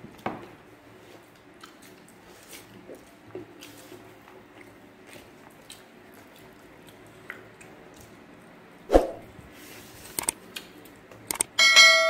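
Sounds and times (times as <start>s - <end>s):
person chewing food: 1.2s - 9.2s.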